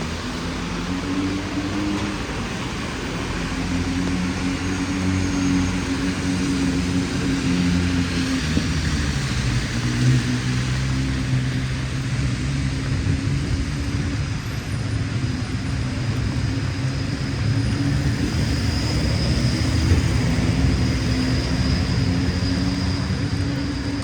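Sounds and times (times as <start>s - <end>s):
motor vehicle humming: 0.0s - 24.0s.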